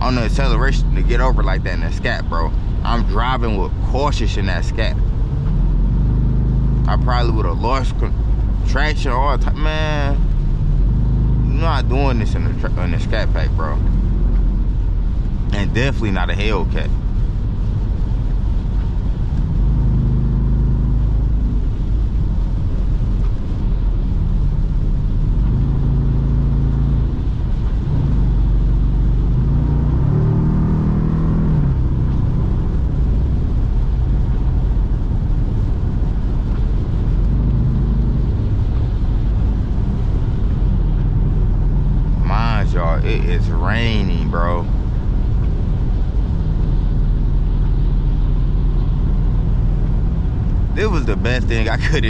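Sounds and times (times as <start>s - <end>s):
low car exhaust drone: 0.0s - 52.0s.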